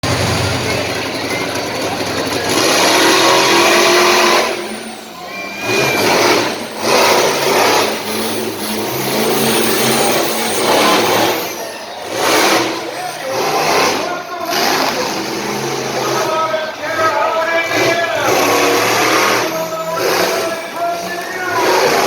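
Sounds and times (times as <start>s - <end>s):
monster truck engines revving: 0.0s - 22.0s.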